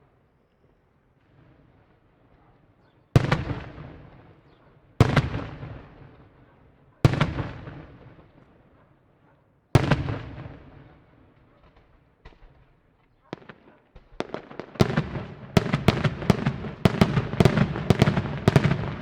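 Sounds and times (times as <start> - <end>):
fireworks exploding: 3.2 - 6.4, 7.0 - 8.5, 9.8 - 19.0
rolling echo: 3.2 - 8.5, 9.8 - 12.6, 13.2 - 19.0.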